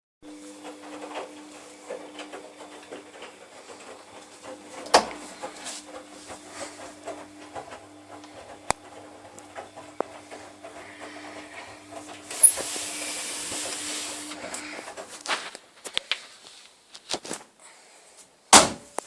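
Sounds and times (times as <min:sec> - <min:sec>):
laundry machine motor hum: 0:00.2 - 0:15.6.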